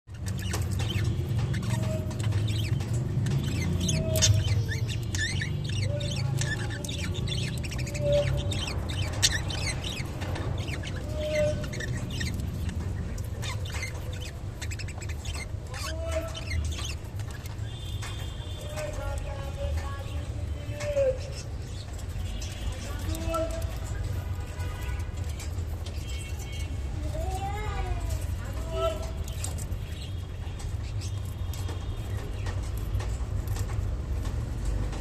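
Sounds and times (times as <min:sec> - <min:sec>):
budgerigars chirping: 0:00.1 - 0:20.4, 0:28.3 - 0:33.8
birds pecking clicks: 0:00.1 - 0:35.0.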